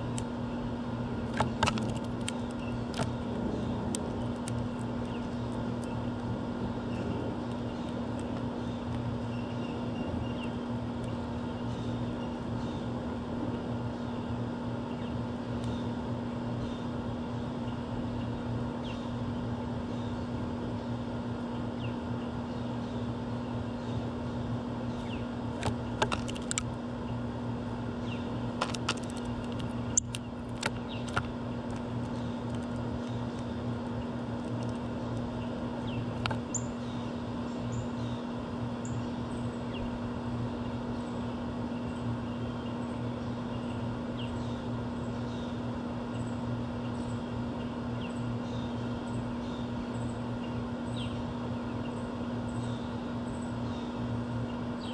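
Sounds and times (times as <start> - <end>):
low mechanical hum: 0.0 - 54.9.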